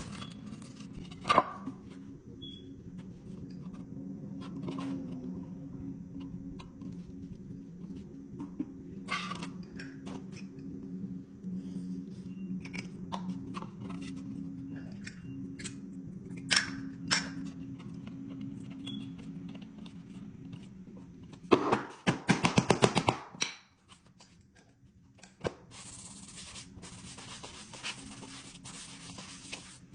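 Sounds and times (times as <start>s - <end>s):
low steady hum: 0.0s - 21.6s.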